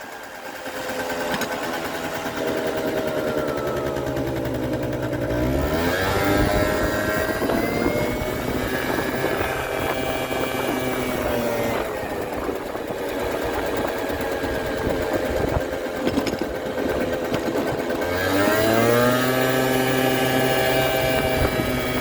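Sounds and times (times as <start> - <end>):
scooter engine revving: 0.0 - 22.0.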